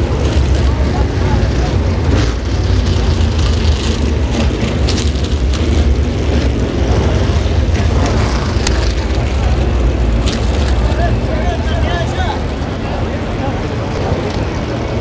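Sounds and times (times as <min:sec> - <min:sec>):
race cars rumbling: 0:00.0 - 0:15.0.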